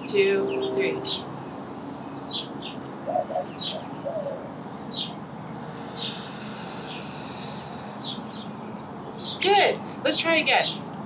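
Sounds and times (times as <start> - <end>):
thin steady high note: 0.0 - 2.1
low bird coos: 3.0 - 4.6.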